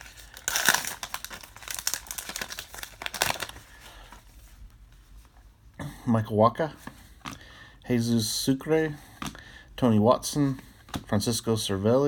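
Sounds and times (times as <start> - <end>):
wrapper tearing and crinkling: 0.0 - 3.8
cards rustling: 0.0 - 4.6.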